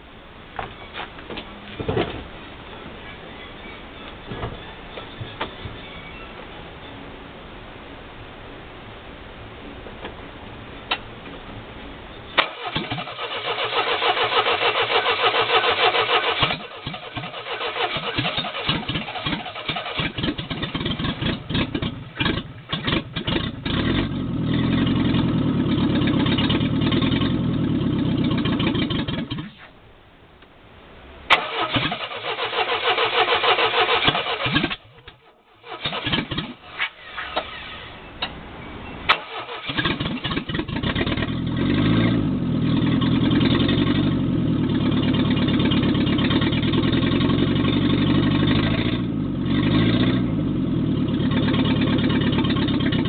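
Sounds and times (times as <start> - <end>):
engine sputtering: 12.4 - 29.6, 31.3 - 38.4, 39.1 - 53.0.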